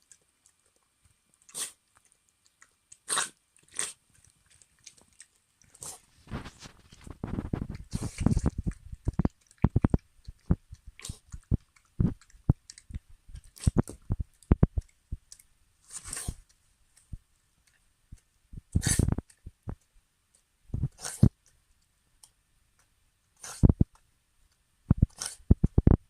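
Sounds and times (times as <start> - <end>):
dog crunching and chewing food: 0.0 - 16.5
short scratchy noises: 5.8 - 11.4, 12.0 - 14.8, 15.9 - 16.4, 18.6 - 19.8.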